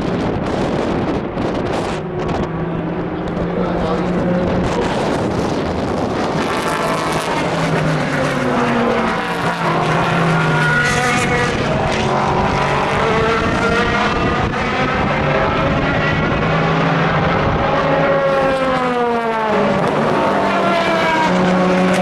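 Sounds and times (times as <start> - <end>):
race car engines passing: 0.0 - 22.0.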